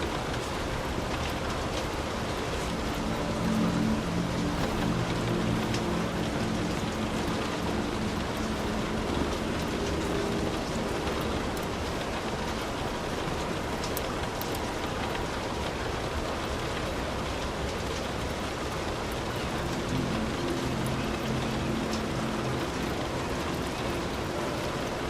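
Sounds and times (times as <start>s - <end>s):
heavy rain on a roof: 0.0s - 25.0s
low rumble: 0.2s - 12.5s.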